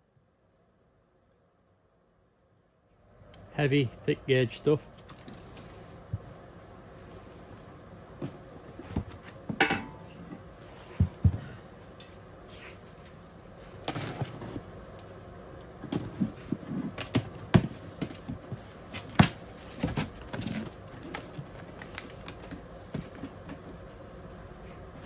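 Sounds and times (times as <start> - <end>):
packaging rustling: 16.0 - 23.7.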